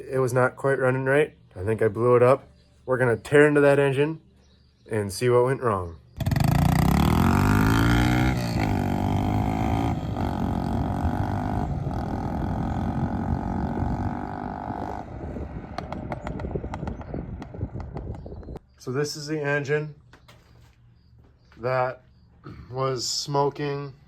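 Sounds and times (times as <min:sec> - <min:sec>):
mini bike engine running: 0:06.2 - 0:14.9.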